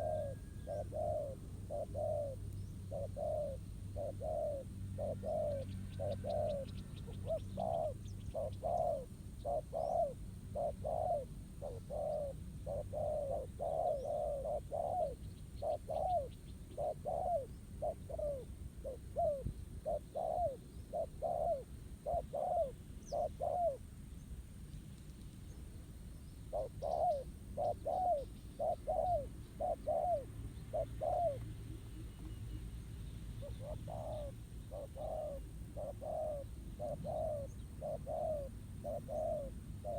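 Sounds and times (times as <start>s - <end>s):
doves cooing: 0.0s - 23.8s, 26.5s - 32.4s, 33.4s - 39.9s
small birds chirping: 0.0s - 39.9s.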